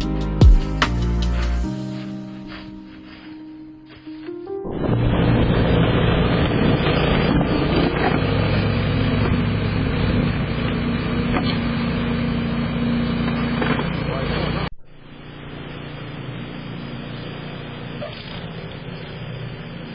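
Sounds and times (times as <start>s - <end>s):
motor vehicle engine hum: 5.0s - 19.9s.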